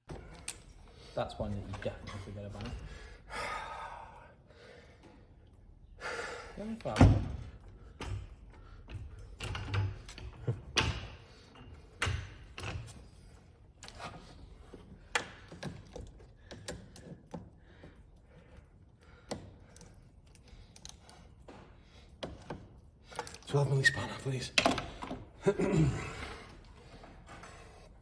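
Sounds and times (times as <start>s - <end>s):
hand tools clunking and clicking: 6.7s - 18.6s.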